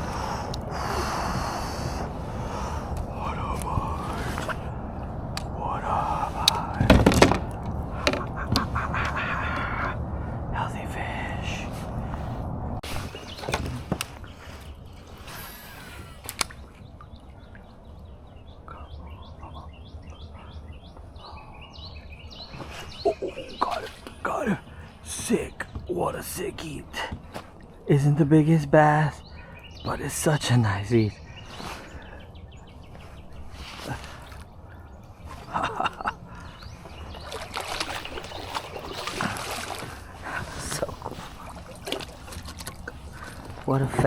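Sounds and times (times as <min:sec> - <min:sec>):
low steady rumble: 0:00.0 - 0:12.9
songbird chirping: 0:00.0 - 0:44.0
water splashing and dripping: 0:34.0 - 0:44.0.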